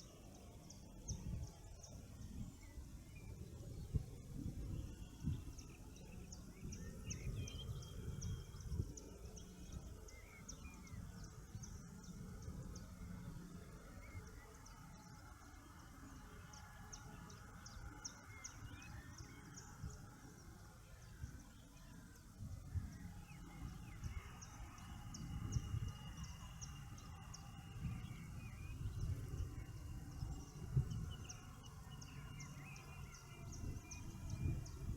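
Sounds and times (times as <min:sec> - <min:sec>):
birds singing lower: 0:00.0 - 0:34.9
steady low rumble: 0:19.1 - 0:34.9.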